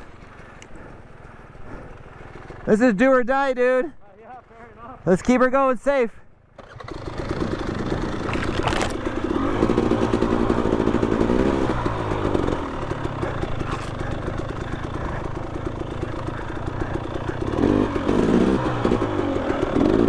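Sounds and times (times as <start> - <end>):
two-stroke dirt bike engine revving: 6.6 - 20.0.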